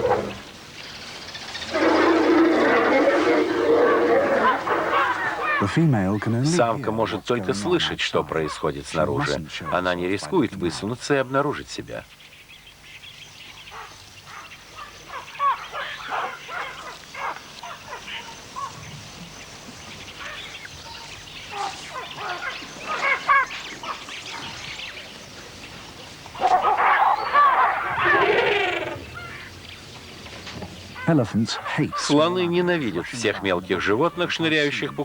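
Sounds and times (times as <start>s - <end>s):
baboons yelping and screeching: 1.6s - 5.8s, 20.2s - 24.6s, 26.4s - 29.5s.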